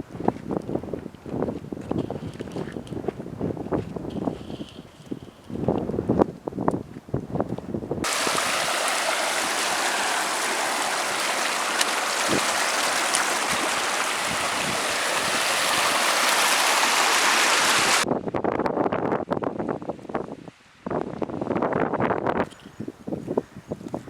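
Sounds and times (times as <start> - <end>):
mountain stream rushing: 8.0 - 18.0.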